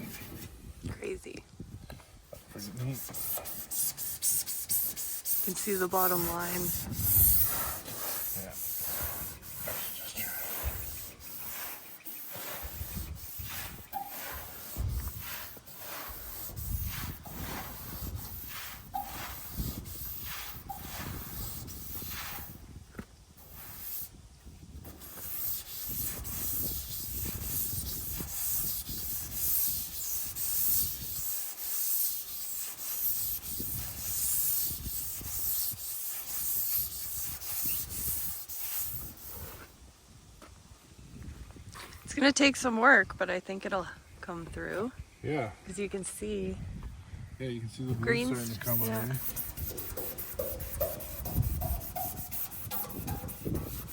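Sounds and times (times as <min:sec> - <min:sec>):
sanding painted sheet metal: 0:00.0 - 0:00.5, 0:02.6 - 0:22.7, 0:23.4 - 0:24.2, 0:24.8 - 0:39.7, 0:47.9 - 0:53.9.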